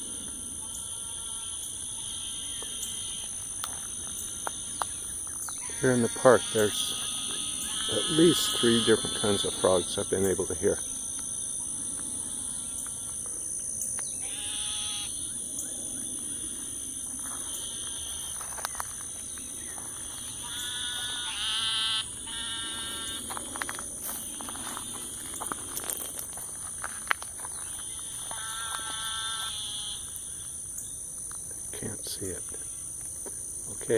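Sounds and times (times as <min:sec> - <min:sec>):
frogs calling: 0:00.0 - 0:33.9
high-pitched drone: 0:05.7 - 0:10.7, 0:20.0 - 0:25.3.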